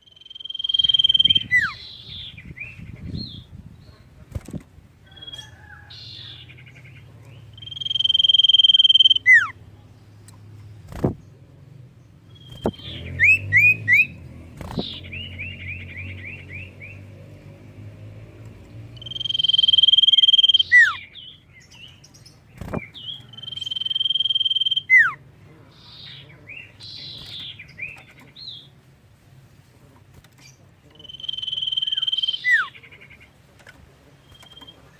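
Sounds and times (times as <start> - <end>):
bird rapid chirps: 0.0 - 4.5, 5.1 - 9.6, 12.2 - 17.1, 18.8 - 28.8, 30.4 - 33.4
bird high whistles: 19.0 - 21.0, 23.4 - 25.2, 31.1 - 32.7.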